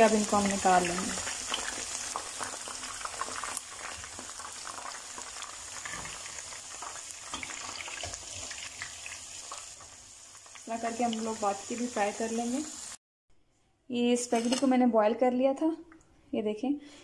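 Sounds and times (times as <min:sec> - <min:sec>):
chicken deep-frying in hot oil: 0:00.0 - 0:13.0.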